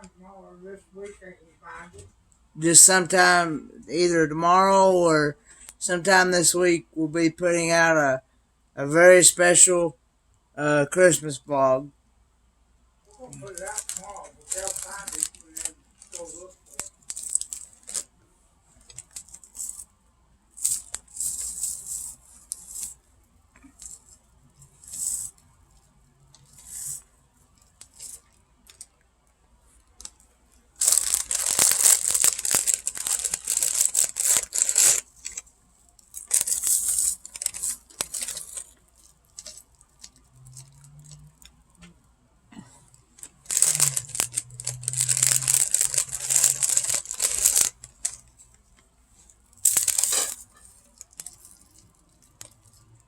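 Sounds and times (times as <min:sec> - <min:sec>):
plastic packaging crackling and tearing: 0:13.1 - 0:18.1, 0:18.8 - 0:19.9, 0:20.6 - 0:23.0, 0:26.4 - 0:29.0, 0:29.8 - 0:41.6, 0:43.1 - 0:48.5, 0:49.2 - 0:53.0.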